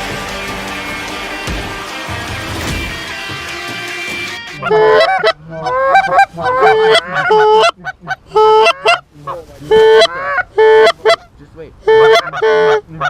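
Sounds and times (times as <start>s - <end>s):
background music: 0.0s - 5.4s
goose honking: 4.6s - 13.0s.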